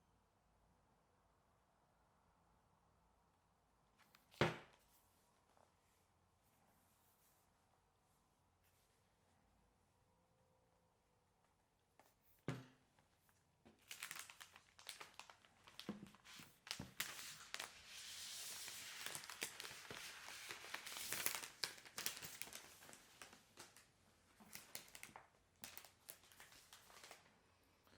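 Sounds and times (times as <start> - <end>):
packaging crinkling and rustling: 13.7 - 27.3.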